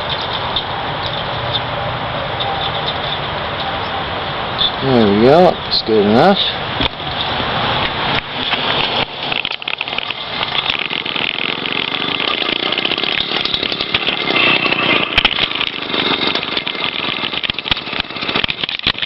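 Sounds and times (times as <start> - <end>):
two-stroke engine raspy buzz: 6.6 - 19.0.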